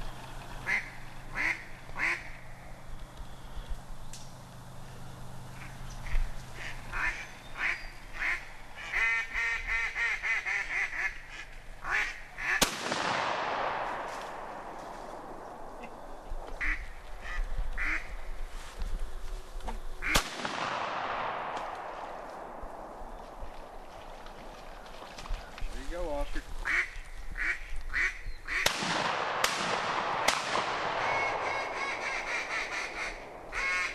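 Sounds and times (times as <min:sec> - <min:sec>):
duck-like calls: 0:00.6 - 0:02.4, 0:05.6 - 0:12.6, 0:16.6 - 0:18.2, 0:26.6 - 0:28.7, 0:31.0 - 0:33.9
shotgun shots with echo: 0:12.6 - 0:14.7, 0:20.1 - 0:22.7, 0:28.6 - 0:31.8.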